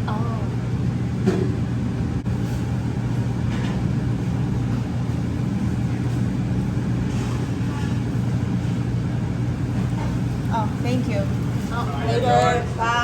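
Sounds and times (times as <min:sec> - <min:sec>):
steady low hum: 0:00.0 - 0:13.0
faint voices: 0:10.5 - 0:13.0.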